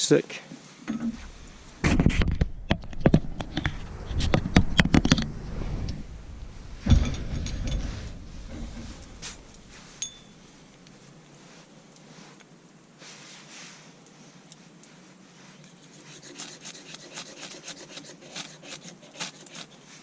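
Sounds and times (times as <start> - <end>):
rustling: 0.6 - 20.0.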